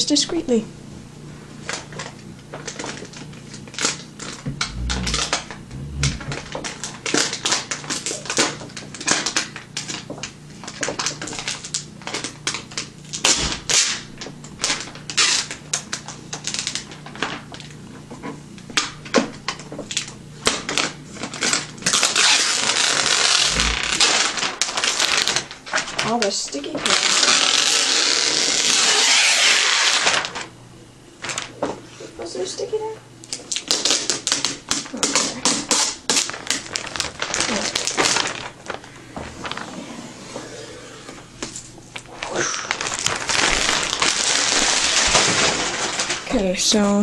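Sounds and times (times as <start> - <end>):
continuous ripping: 1.7 - 17.8, 19.5 - 30.5, 33.3 - 39.8, 41.4 - 46.5
plastic wrap peeled off crackling: 1.7 - 17.8, 18.8 - 30.5, 31.2 - 31.6, 33.3 - 39.8, 41.4 - 46.5.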